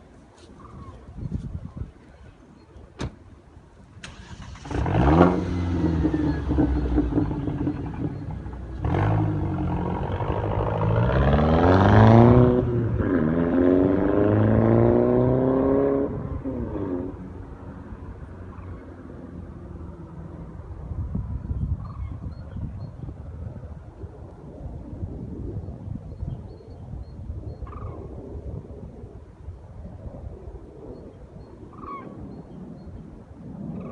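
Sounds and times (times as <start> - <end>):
car engine revving: 4.1 - 17.2.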